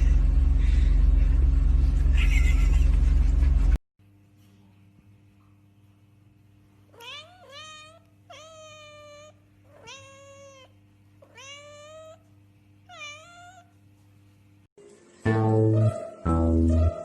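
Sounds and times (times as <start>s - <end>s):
steady low hum: 0.0s - 6.9s
cat meowing: 7.0s - 12.2s, 12.9s - 13.7s.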